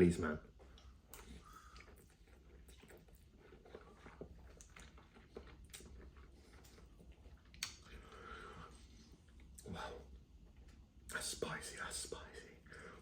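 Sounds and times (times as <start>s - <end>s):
chewing noodles: 0.4s - 11.1s
wet mouth clicks: 0.8s - 3.2s, 7.4s - 8.0s.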